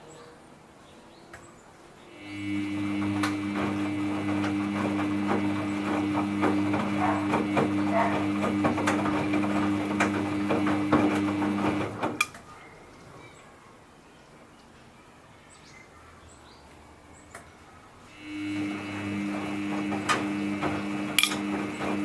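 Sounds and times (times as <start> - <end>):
washing machine motor hum: 2.1 - 12.4, 18.1 - 22.0
laundry knocking and sloshing: 3.0 - 12.3.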